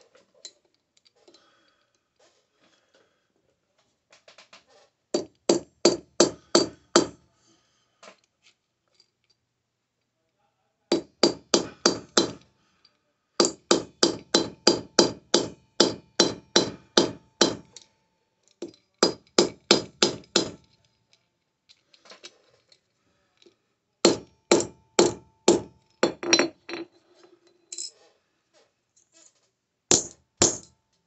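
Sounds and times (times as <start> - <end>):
hammer striking silver bar: 10.9 - 12.4, 13.4 - 17.8, 29.9 - 30.7.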